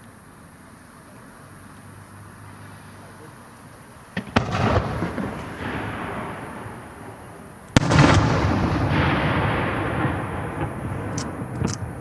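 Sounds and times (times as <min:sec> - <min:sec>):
firework shells bursting: 0:04.1 - 0:12.0
rumbling crackling tail: 0:04.2 - 0:12.0.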